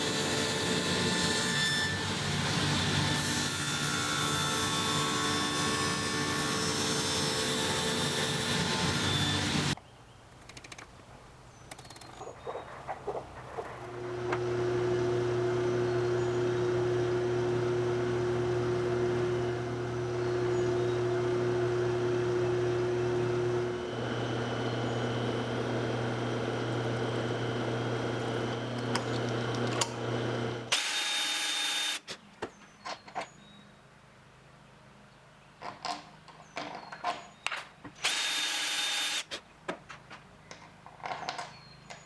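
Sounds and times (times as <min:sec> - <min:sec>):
power tool motor humming: 0:13.8 - 0:32.2, 0:38.0 - 0:39.3.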